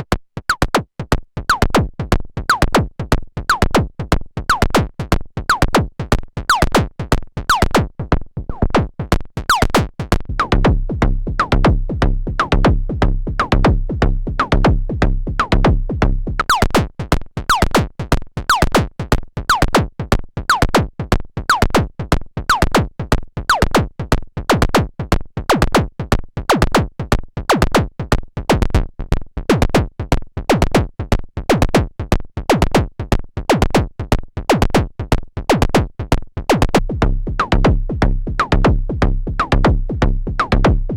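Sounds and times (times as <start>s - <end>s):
drum synthesizer percussion pattern: 0.0s - 28.8s, 29.5s - 40.9s
low bass tone: 10.2s - 16.4s, 36.8s - 40.9s.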